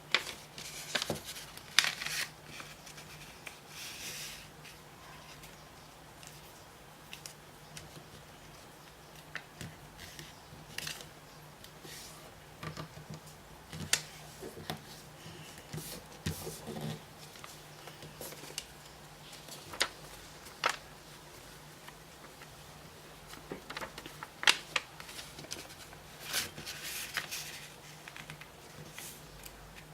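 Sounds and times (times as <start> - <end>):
faint steady hum: 0.0 - 29.9
paper crinkling and creasing: 0.1 - 5.6, 13.7 - 29.9.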